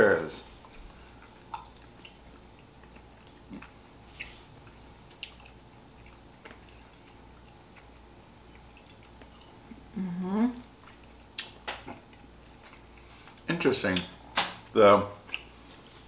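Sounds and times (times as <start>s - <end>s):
person chewing taffy: 0.5s - 9.9s, 10.7s - 13.5s, 15.2s - 15.8s.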